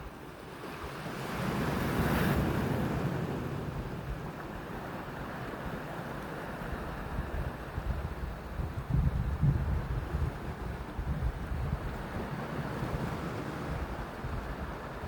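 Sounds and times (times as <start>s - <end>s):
wind buffeting microphone: 7.0s - 15.0s.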